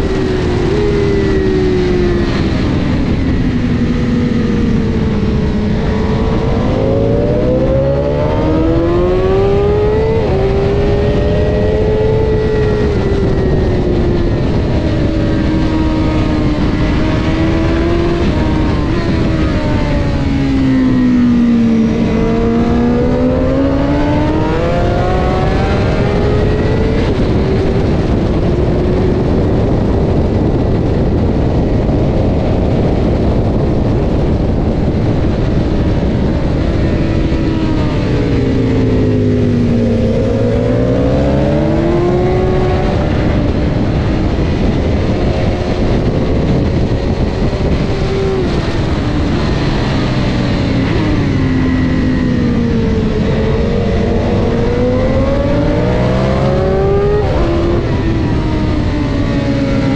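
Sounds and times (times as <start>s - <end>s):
motorcycle engine accelerating: 0.0s - 59.9s
wind rush over microphone: 0.0s - 59.9s.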